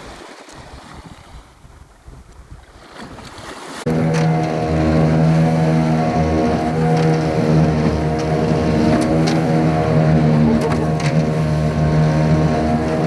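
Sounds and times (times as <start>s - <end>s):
water lapping around boat: 0.0s - 13.0s
wind: 0.0s - 13.0s
boat engine droning: 3.8s - 13.0s.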